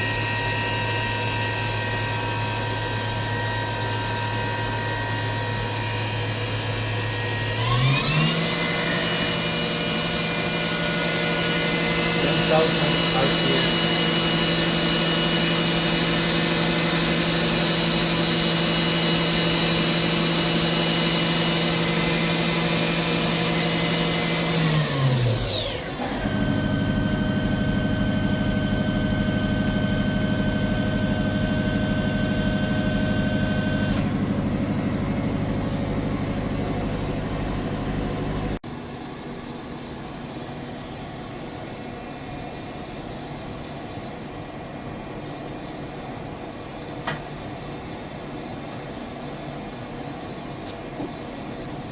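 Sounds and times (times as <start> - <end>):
machine spindle whine: 0.0 - 38.6
steady machine hum: 0.0 - 51.9.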